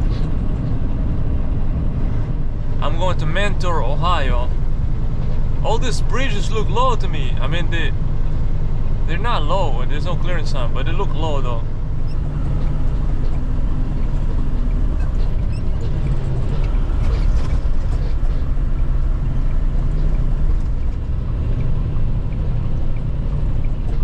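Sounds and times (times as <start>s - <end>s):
diesel engine drone: 0.0s - 24.0s
road noise: 0.0s - 24.0s.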